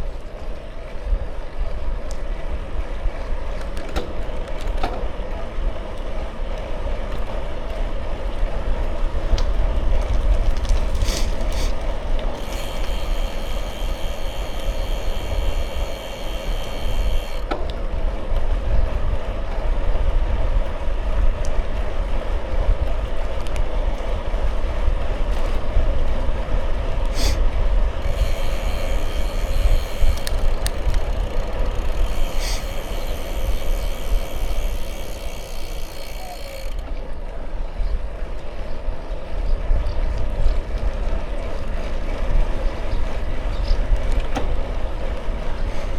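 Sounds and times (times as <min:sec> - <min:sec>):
bicycle tyres rolling on road: 0:00.0 - 0:45.9
high steady ringing: 0:12.4 - 0:17.4
sharp clicks: 0:28.0 - 0:35.6.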